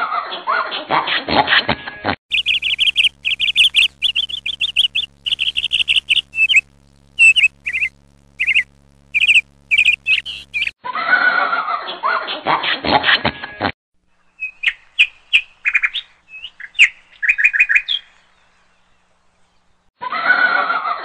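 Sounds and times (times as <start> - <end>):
bird chirping high notes: 2.3 - 10.7
lower sound: 2.3 - 10.7.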